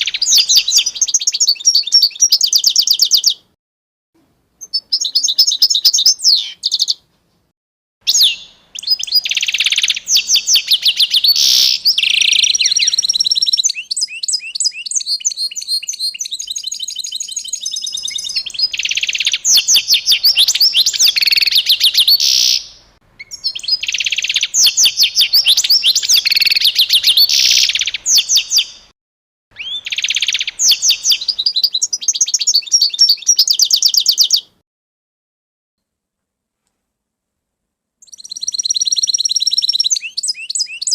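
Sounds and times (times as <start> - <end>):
songbird singing chirps and trills: 0.0 - 3.6, 4.2 - 7.5, 8.1 - 28.9, 29.5 - 34.6, 38.0 - 40.9.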